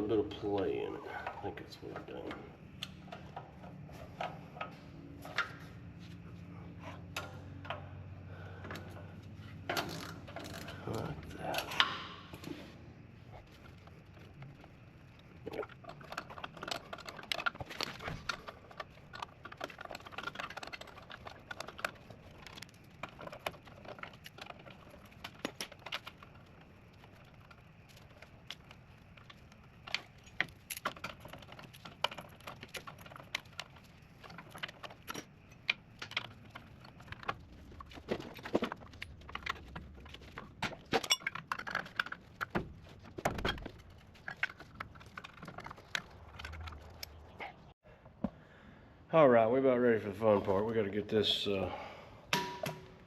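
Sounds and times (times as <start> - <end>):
tools and metal parts clinking: 6.9 - 47.7.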